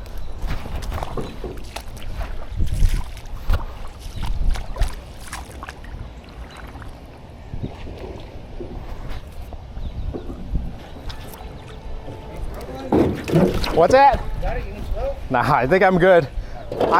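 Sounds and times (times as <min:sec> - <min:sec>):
canoe splashing and knocking: 0:00.5 - 0:09.1, 0:10.0 - 0:14.4.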